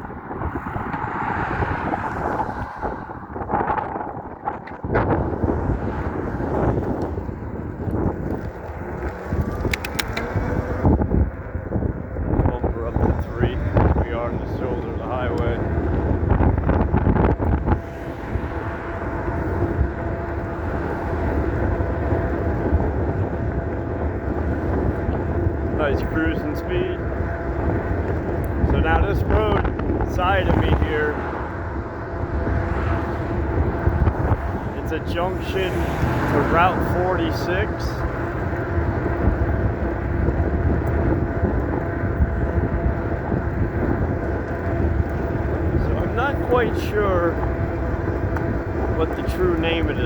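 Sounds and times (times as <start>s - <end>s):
tyre noise: 0.0s - 29.6s
rumbling wind: 0.0s - 50.0s
electric motor hum: 0.4s - 50.0s.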